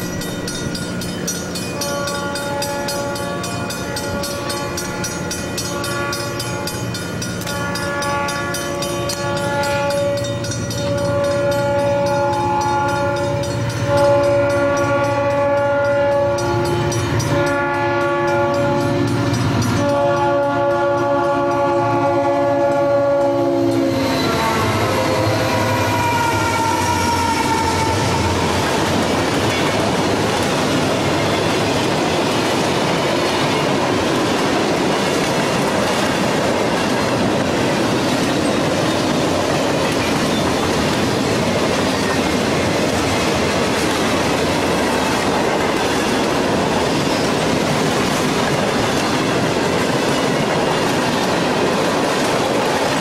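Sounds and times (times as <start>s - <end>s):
freight cars rolling on rails: 0.0s - 53.0s
diesel locomotive horn: 1.8s - 31.6s.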